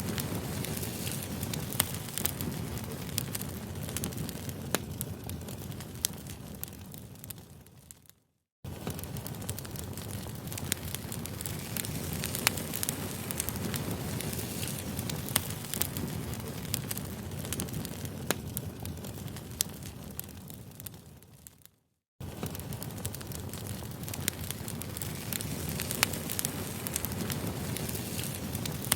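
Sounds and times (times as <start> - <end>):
campfire crackling: 0.0 - 28.9.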